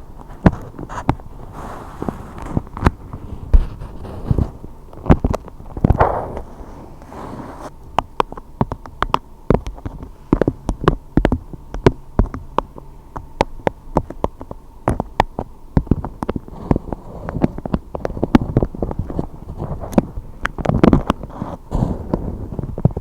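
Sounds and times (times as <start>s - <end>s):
low steady hum: 0.0s - 23.0s
sharp clicks and taps: 7.8s - 19.3s.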